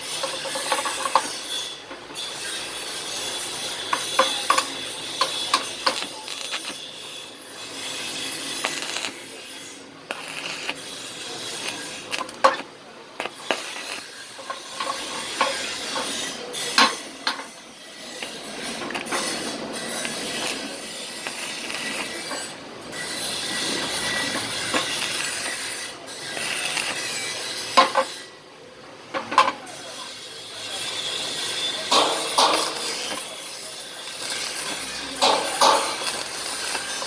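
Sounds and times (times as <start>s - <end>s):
crackling hiss: 2.7s - 28.0s, 30.7s - 37.0s.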